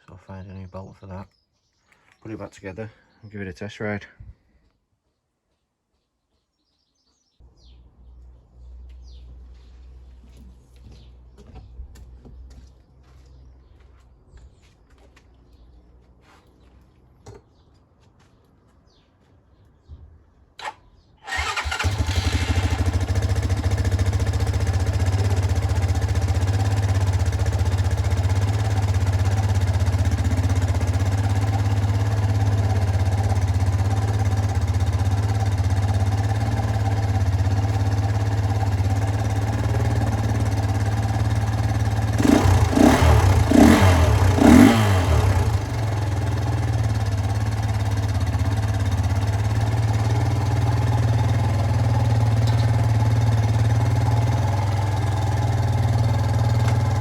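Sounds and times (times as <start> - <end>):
dirt bike engine idling and revving: 21.3 - 57.0.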